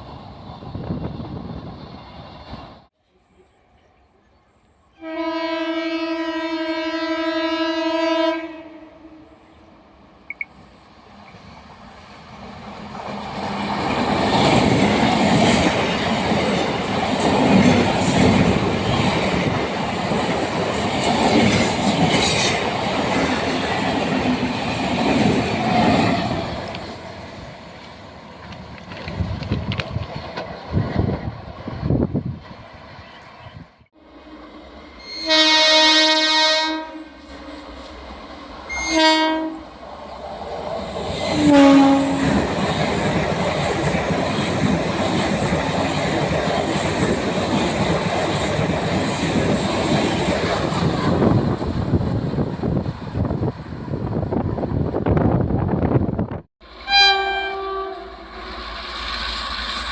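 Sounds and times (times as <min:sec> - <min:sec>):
train horn blast: 0:05.0 - 0:09.5, 0:34.0 - 0:37.5, 0:38.7 - 0:39.7, 0:41.4 - 0:42.4, 0:56.6 - 0:58.7
train wheels rumbling on rails: 0:10.3 - 0:33.5, 0:39.4 - 0:56.8.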